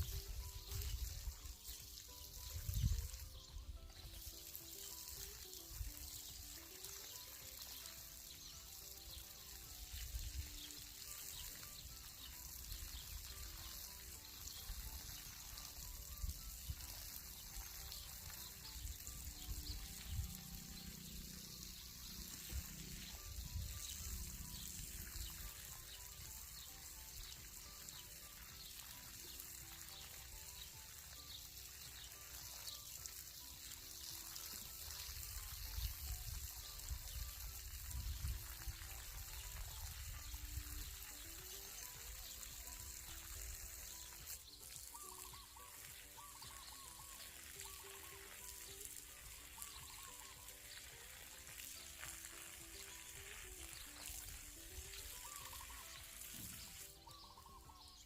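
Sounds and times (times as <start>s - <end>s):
soft background music: 0.0s - 58.0s
water pouring onto plants: 0.0s - 58.0s
wind rumbling on microphone: 2.4s - 3.4s, 35.8s - 40.9s.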